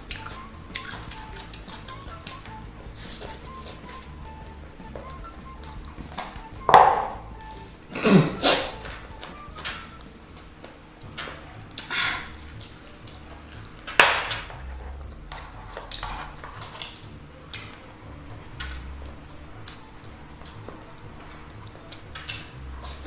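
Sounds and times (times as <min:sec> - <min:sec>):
chewing and crunching: 0:14.5 - 0:23.0.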